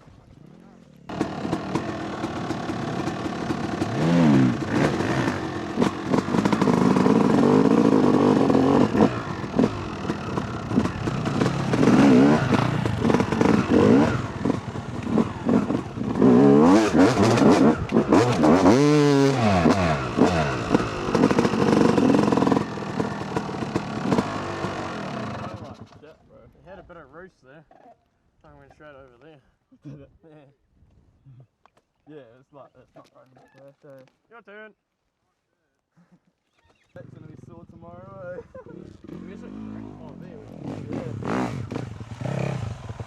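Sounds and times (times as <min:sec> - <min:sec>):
dirt bike engine revving: 0:00.4 - 0:26.0, 0:38.8 - 0:43.0.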